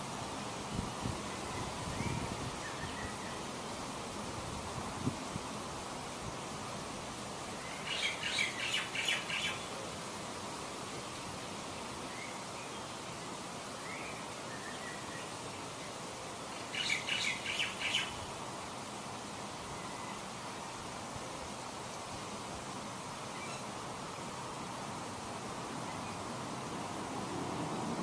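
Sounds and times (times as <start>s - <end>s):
outdoor ambience hiss: 0.0s - 28.0s
songbird chirping: 7.6s - 9.8s, 11.2s - 18.3s.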